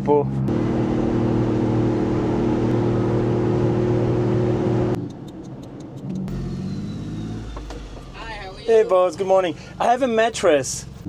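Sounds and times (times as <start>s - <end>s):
small truck engine running: 0.5s - 11.0s.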